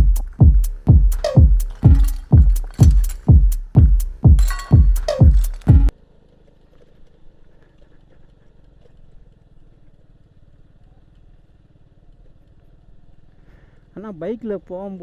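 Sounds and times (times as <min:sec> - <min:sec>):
electronic music with bass drum: 0:00.0 - 0:05.9
motorcycle engine running: 0:00.0 - 0:05.9.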